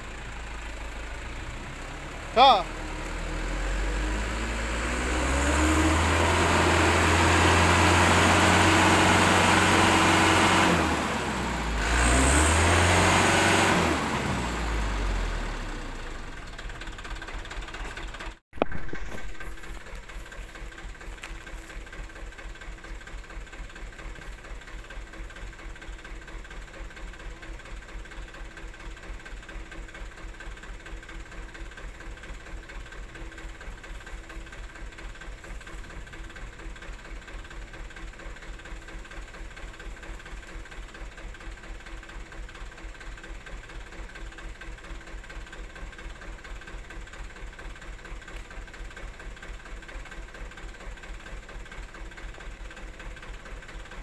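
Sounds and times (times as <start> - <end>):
diesel truck engine revving: 0.0 - 24.3
diesel engine idling: 0.0 - 54.0.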